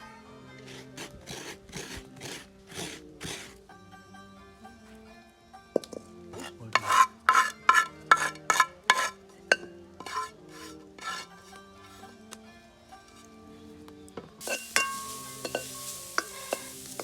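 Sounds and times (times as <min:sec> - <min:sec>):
spoon scraping a pot: 0:06.4 - 0:12.1, 0:14.4 - 0:17.0
spoon clinking against pot: 0:06.7 - 0:10.3, 0:14.4 - 0:17.0.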